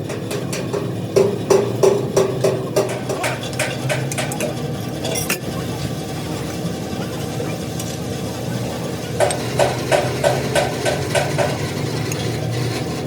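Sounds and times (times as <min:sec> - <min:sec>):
metal striking metal: 0:00.0 - 0:05.4
machine humming: 0:00.0 - 0:13.0.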